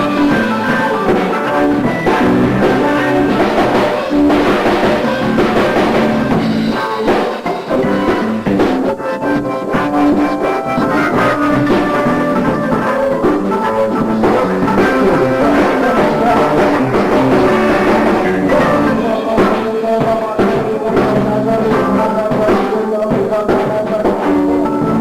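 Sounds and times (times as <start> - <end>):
drums: 0.0 - 25.0
guitar: 0.0 - 25.0
live band playing hip hop funk: 0.0 - 25.0.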